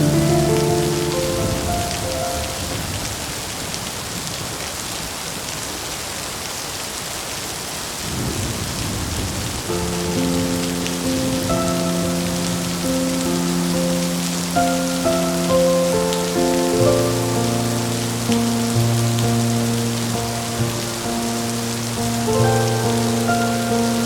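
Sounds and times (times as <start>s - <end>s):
low roll of thunder: 0.0s - 3.8s, 8.0s - 12.7s
steady rain falling: 0.0s - 24.0s.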